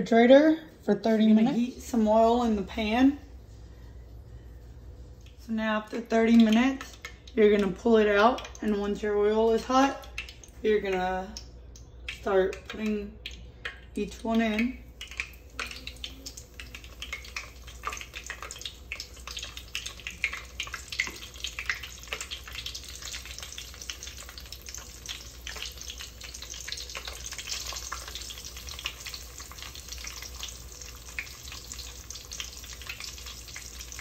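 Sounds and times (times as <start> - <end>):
pork chops sizzling and crackling in oil: 14.1 - 34.0.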